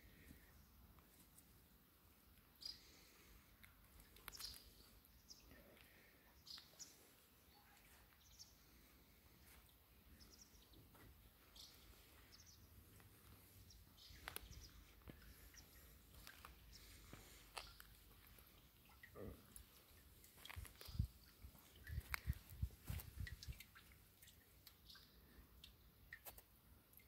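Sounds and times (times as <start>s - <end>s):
faint bird chirps: 2.5s - 3.3s, 4.0s - 17.0s, 24.7s - 25.9s.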